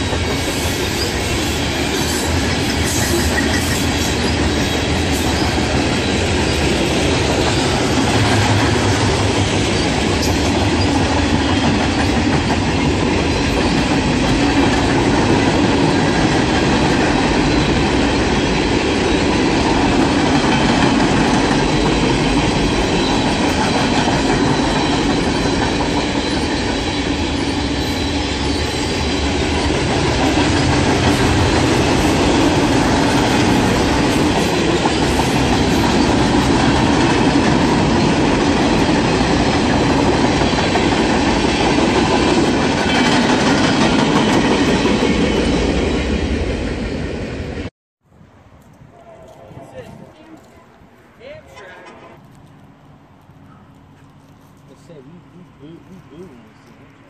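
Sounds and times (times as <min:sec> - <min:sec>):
train wheels rumbling on rails: 0:00.0 - 0:47.7.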